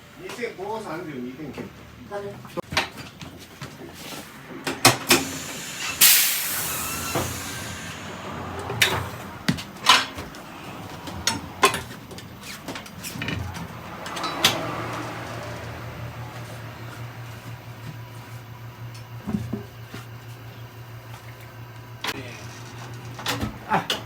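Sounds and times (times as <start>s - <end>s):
loud air hiss: 5.0s - 10.9s.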